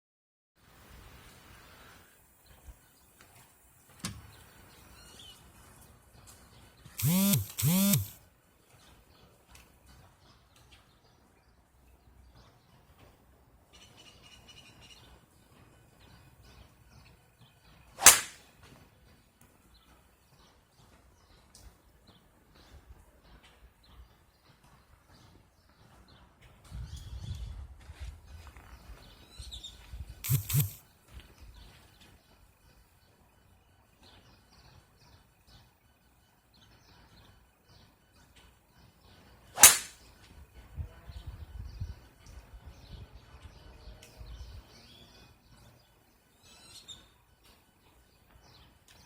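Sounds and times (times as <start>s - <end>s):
golf club striking ball: 18.0s - 18.4s, 39.6s - 40.0s
faint bird chirps: 46.4s - 47.2s.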